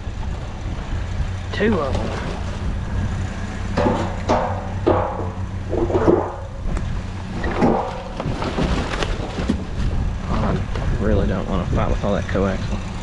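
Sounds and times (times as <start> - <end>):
rattling and scraping noises: 1.6 - 11.3.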